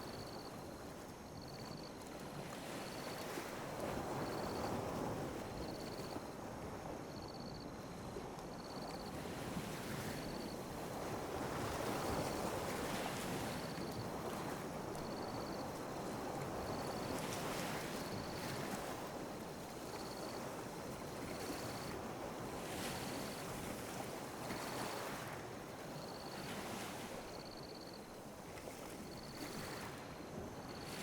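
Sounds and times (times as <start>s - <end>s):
sea waves lapping on beach: 7.8s - 31.0s.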